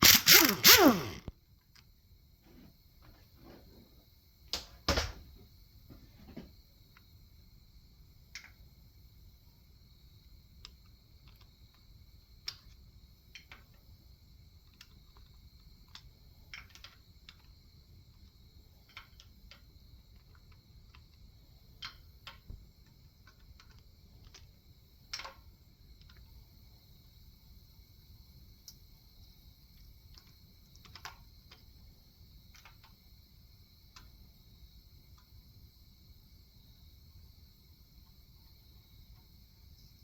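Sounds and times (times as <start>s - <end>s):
faint light clicks and taps: 29.8s - 31.7s.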